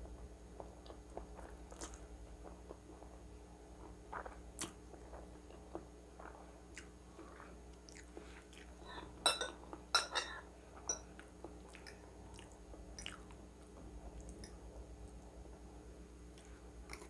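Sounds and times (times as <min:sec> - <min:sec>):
chewing with wet mouth clicks: 0:00.8 - 0:02.0, 0:04.1 - 0:04.8, 0:05.7 - 0:08.8, 0:11.2 - 0:13.4, 0:16.4 - 0:17.0
cutlery clinking on a plate: 0:09.3 - 0:11.0.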